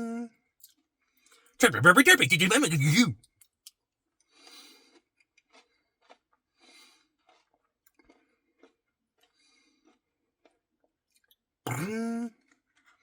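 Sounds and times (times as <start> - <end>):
faint chewing and mouth sounds: 4.5 - 10.0.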